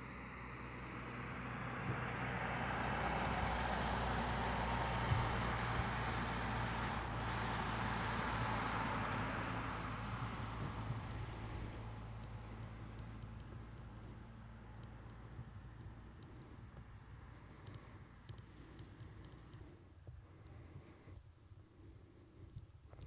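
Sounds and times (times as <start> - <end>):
vehicle passing by: 0.0 - 16.6
low engine hum: 0.0 - 21.1.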